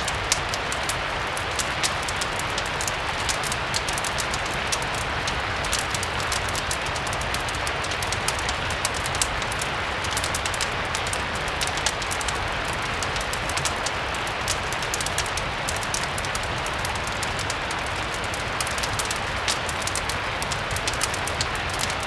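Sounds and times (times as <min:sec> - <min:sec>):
fire crackling: 0:00.0 - 0:22.0
steady rain: 0:00.0 - 0:22.0.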